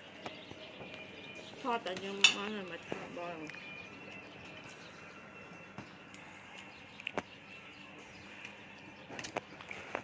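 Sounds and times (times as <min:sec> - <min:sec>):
faint chewing: 0:05.9 - 0:10.0.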